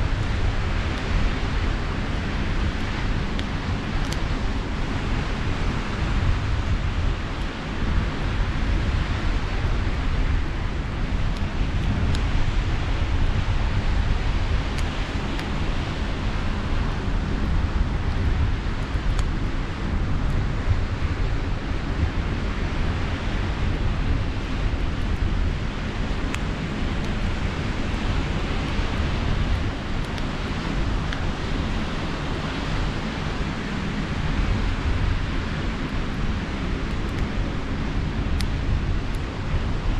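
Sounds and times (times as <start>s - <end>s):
campfire crackling: 0.0s - 39.9s
wind buffeting microphone: 0.0s - 39.9s.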